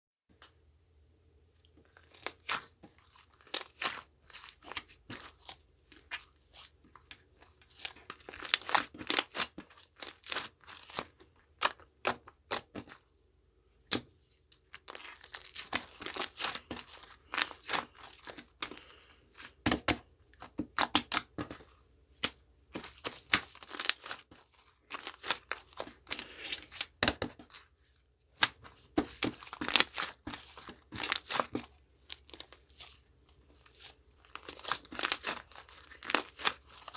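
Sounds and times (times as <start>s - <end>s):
paper or plastic crinkling: 1.8s - 11.2s, 14.6s - 19.6s, 22.7s - 28.0s, 28.6s - 36.9s.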